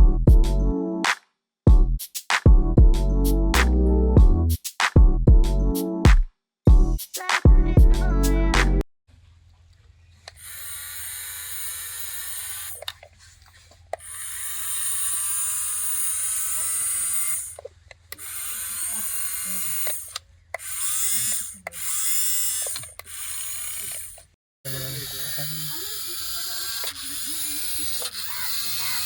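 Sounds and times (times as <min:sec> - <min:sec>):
small electric motor whirring: 0:10.3 - 0:13.1, 0:13.9 - 0:29.0.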